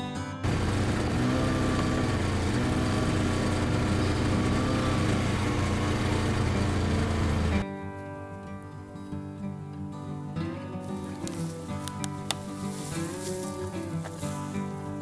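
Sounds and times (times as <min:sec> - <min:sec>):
small petrol engine running: 0:00.4 - 0:07.6.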